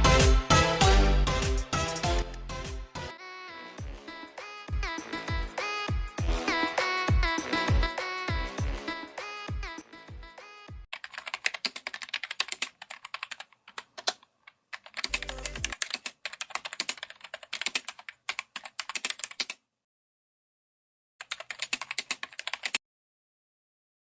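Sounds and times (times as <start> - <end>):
music track: 0.0 - 10.5, 15.1 - 15.7
keyboard typing clicks: 11.0 - 19.6, 21.2 - 22.8.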